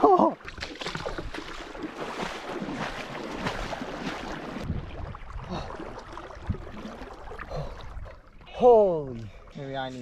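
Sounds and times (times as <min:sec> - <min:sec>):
water splashing and sloshing: 0:00.0 - 0:10.0.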